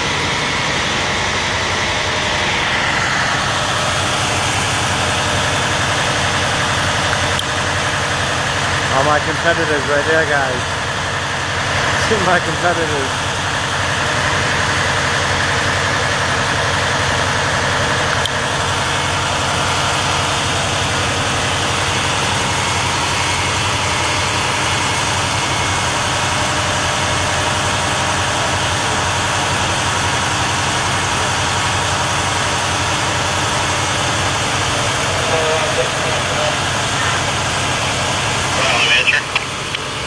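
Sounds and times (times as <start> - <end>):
vehicle engine idling: 0.0 - 40.0.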